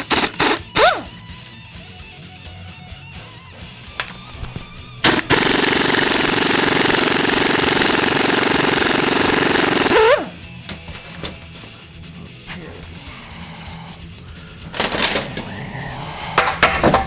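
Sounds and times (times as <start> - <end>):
impact wrench hammering: 0.0 - 1.2, 5.0 - 11.4.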